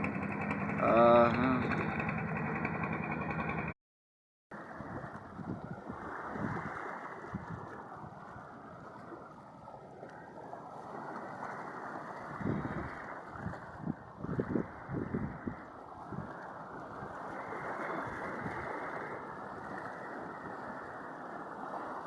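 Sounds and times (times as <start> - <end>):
wind buffeting microphone: 4.6 - 9.2, 10.8 - 21.9.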